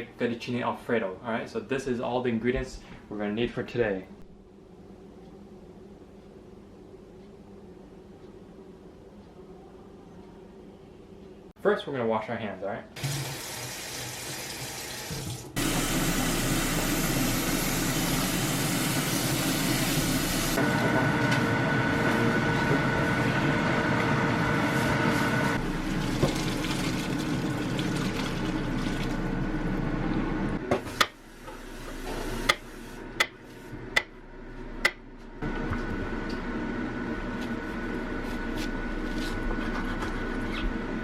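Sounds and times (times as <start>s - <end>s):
tap water running into sink: 13.0s - 20.6s, 25.8s - 29.2s.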